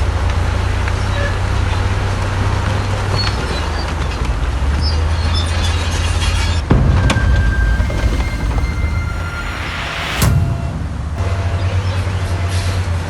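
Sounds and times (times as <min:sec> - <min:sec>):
faint metallic squeaks and clanks: 0:06.8 - 0:12.0.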